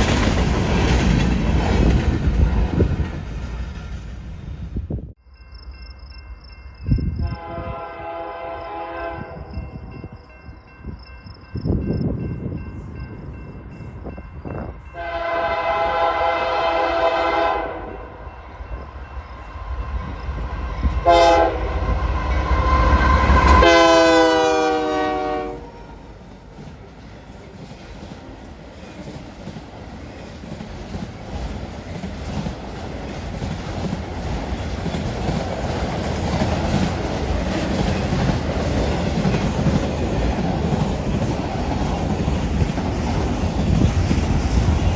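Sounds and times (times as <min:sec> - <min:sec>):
train wheels rumbling and clacking: 0:00.0 - 0:05.1, 0:11.2 - 0:44.9
locomotive air horn blasts: 0:07.2 - 0:09.7, 0:15.0 - 0:18.2, 0:21.0 - 0:26.0.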